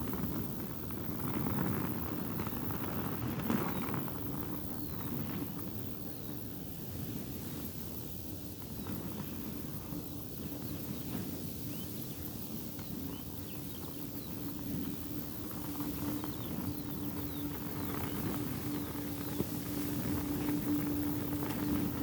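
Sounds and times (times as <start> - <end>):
fabric flapping in wind: 0.0 - 22.0
wind rumble on microphone: 0.0 - 22.0
steady low hum: 5.5 - 22.0.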